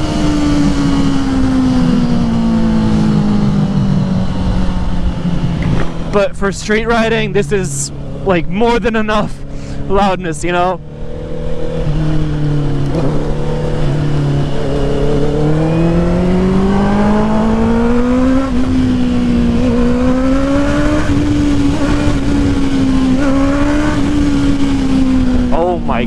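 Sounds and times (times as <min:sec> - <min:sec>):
loud motorcycle engine: 0:00.0 - 0:26.0.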